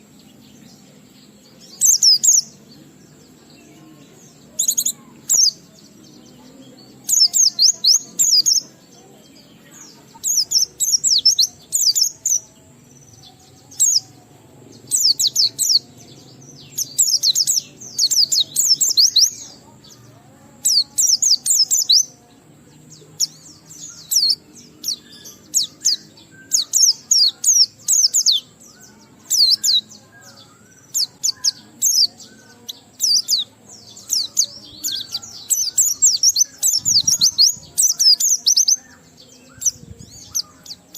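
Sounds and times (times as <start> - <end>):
bird high-pitched twittering: 0.0 - 40.9.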